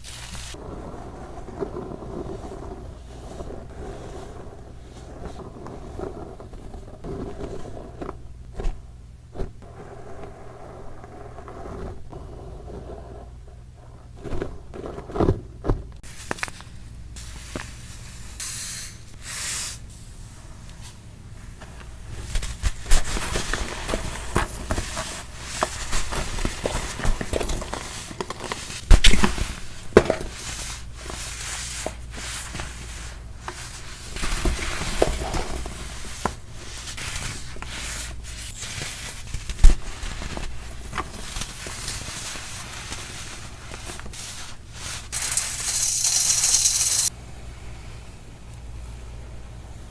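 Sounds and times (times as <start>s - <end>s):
baking soda crunching: 0.0s - 7.8s, 22.1s - 47.1s.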